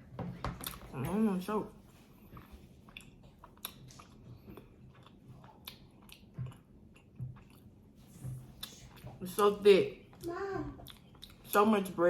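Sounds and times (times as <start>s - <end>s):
mouth chewing sticky food: 2.2s - 9.4s, 10.1s - 11.7s.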